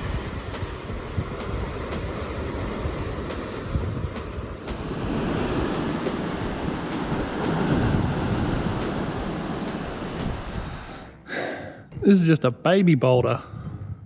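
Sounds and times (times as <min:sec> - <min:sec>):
surf breaking on rocks: 0:00.0 - 0:11.1
wind buffeting microphone: 0:00.0 - 0:11.2, 0:13.3 - 0:14.0.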